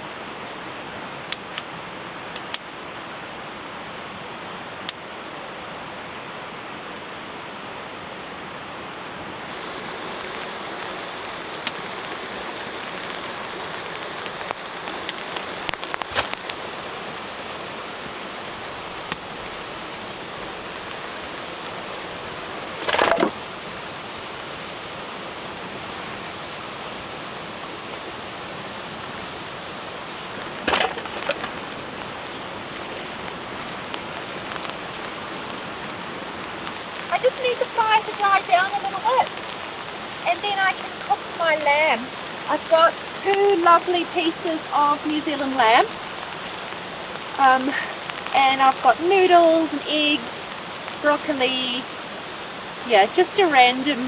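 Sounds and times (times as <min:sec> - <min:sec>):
loud fire crack: 0:00.0 - 0:06.6, 0:09.3 - 0:54.0
river rushing: 0:00.0 - 0:54.0
campfire crackling and popping: 0:00.2 - 0:06.6, 0:09.4 - 0:54.0.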